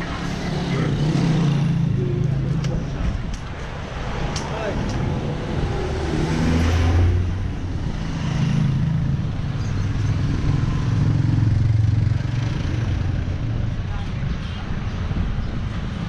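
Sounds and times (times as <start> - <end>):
road noise: 0.0 - 16.0
wind noise: 13.6 - 16.0.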